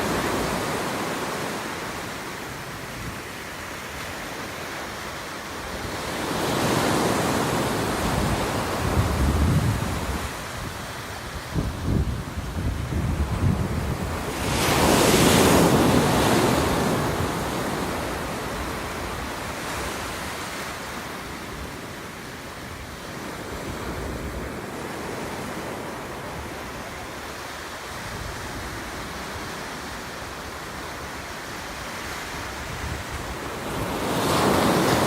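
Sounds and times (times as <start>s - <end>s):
ocean waves breaking: 0.0s - 35.0s
surf hiss: 0.0s - 35.0s
wind rumble on microphone: 7.3s - 20.5s, 31.7s - 35.0s.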